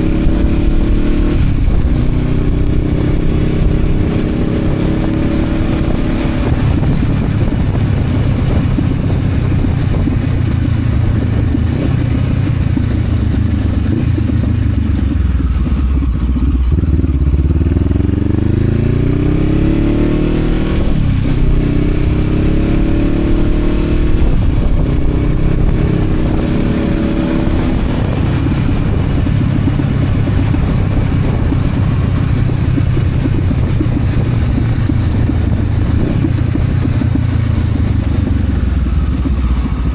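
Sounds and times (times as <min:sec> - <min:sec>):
motorcycle engine revving: 0:00.0 - 0:39.9
wind and road noise: 0:00.0 - 0:39.9.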